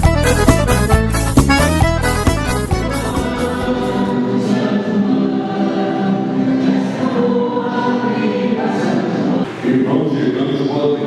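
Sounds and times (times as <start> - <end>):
instrumental music with heavy bass: 0.0 - 4.1
choir singing long notes: 2.7 - 11.0.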